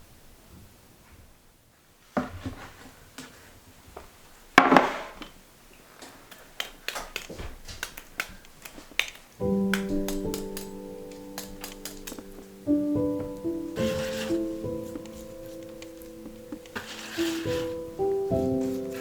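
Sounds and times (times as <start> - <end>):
light clicks and taps: 7.2 - 12.5.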